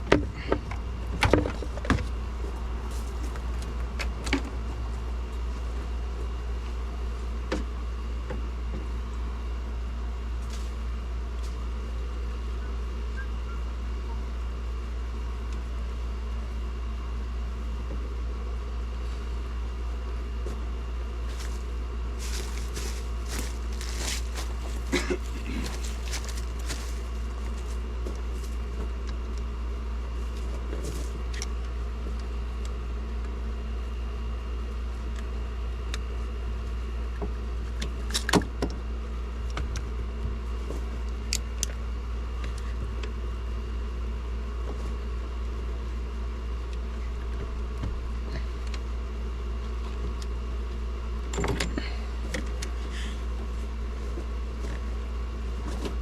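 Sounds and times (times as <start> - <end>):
low hum: 21.2 - 28.8.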